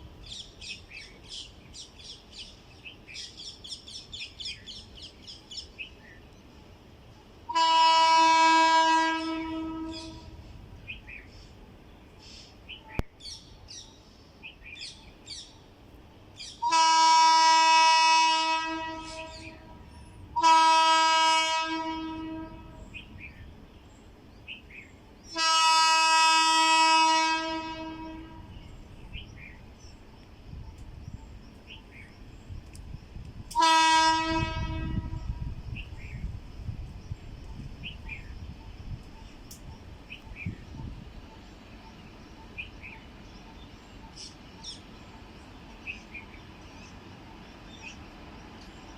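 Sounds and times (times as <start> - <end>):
locomotive horn blasts: 7.5 - 10.4, 16.6 - 22.9, 25.4 - 28.5, 33.5 - 35.5
birds chirping: 34.6 - 48.9.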